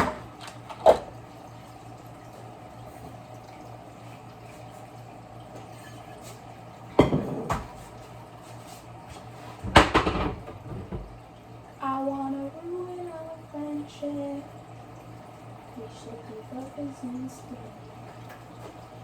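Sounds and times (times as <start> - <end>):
dishes clattering: 5.6 - 7.8, 9.6 - 11.1.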